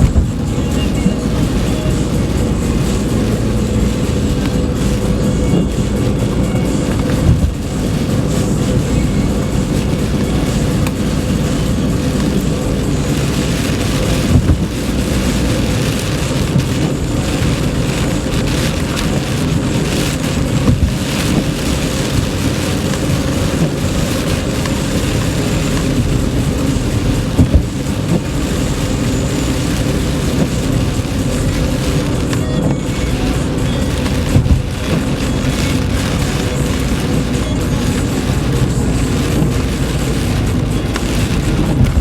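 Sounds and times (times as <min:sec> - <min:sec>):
car bumps: 0:00.0 - 0:01.3, 0:27.3 - 0:28.2
heavy rain on a car: 0:00.0 - 0:42.0
road and engine rumble: 0:00.0 - 0:42.0.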